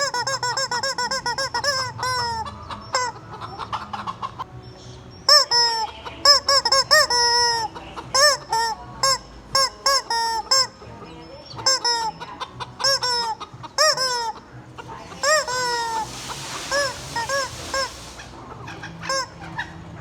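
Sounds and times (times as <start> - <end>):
rubber chicken toy squawking: 0.0 - 4.5, 5.2 - 20.0
breathy hiss: 14.8 - 19.2.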